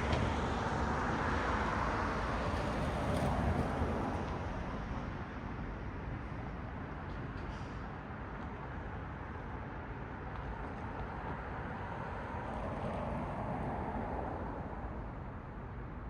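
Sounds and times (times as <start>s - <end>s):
traffic hum: 0.0s - 4.3s.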